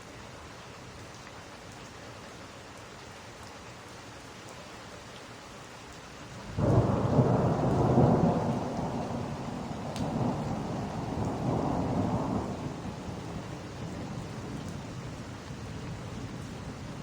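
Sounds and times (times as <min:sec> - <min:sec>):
steady rain falling: 0:00.0 - 0:17.0
loud thunder rumbling: 0:06.6 - 0:17.0.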